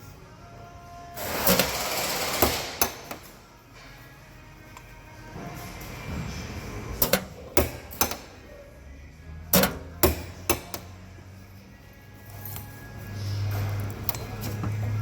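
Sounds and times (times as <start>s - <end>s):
hammer strikes: 1.5s - 3.3s, 7.0s - 8.4s, 9.5s - 11.0s.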